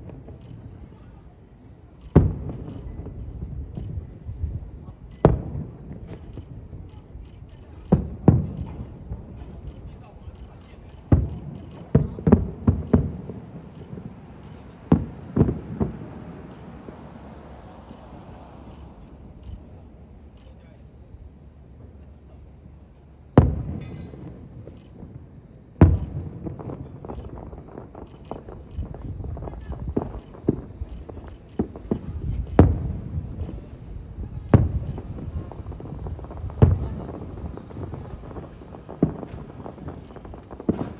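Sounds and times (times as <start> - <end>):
fireworks bursting: 0.0 - 40.9.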